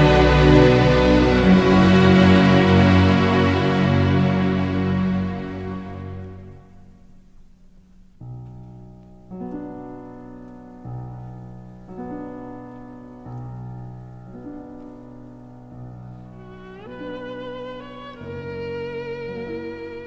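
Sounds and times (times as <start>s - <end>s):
violin upward slide: 0.0s - 6.6s, 16.3s - 20.0s
piano playing slow chords: 0.0s - 20.0s.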